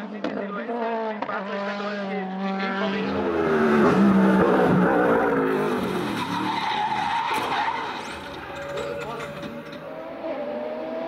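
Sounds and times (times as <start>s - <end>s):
race car engine passing: 0.7s - 11.0s
tyres skidding and squealing: 2.8s - 10.4s.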